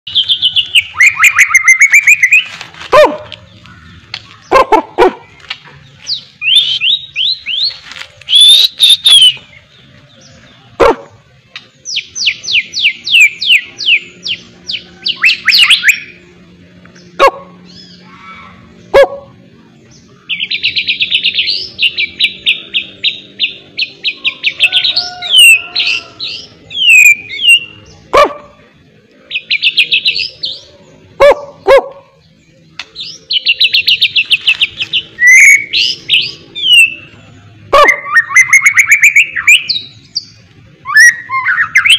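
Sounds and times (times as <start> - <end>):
songbird whistling and trilling: 0.1 - 2.5, 6.0 - 9.6, 11.9 - 16.2, 20.3 - 27.8, 32.9 - 37.2, 37.8 - 41.9.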